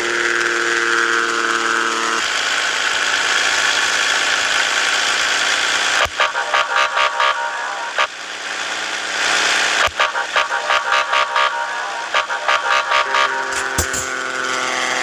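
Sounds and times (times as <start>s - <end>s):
truck engine running: 0.0s - 15.0s
held tone: 12.6s - 14.6s
sharp knocks: 13.6s - 14.2s.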